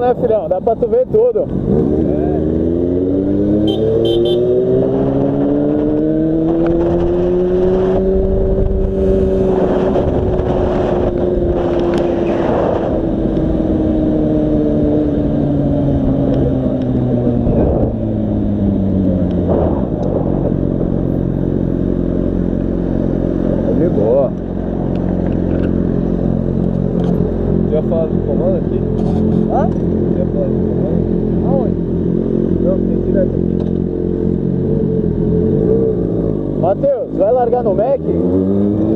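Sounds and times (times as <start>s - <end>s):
motorcycle engine: 0.0s - 38.9s
wind noise on microphone: 4.8s - 21.4s.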